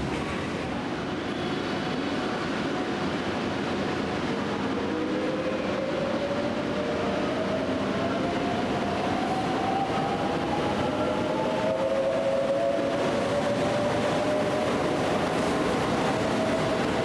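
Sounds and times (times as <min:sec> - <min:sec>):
train running rumble: 0:00.0 - 0:04.3.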